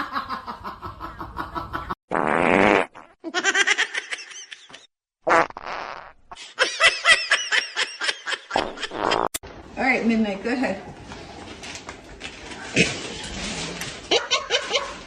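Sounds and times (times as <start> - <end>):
raspy fart-like blasts: 2.1 - 3.2, 5.2 - 6.2, 8.6 - 9.4.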